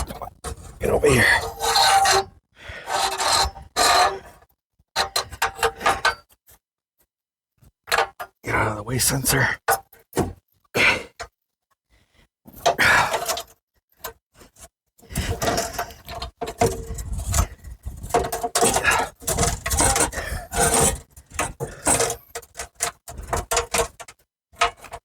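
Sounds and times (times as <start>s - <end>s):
metal scraping and clanking: 15.3s - 24.0s.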